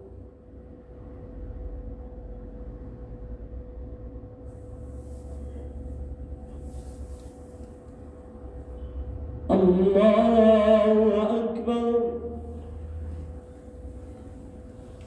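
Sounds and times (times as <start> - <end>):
faint hum: 0.0 - 15.0
low room noise rumble: 0.0 - 15.0.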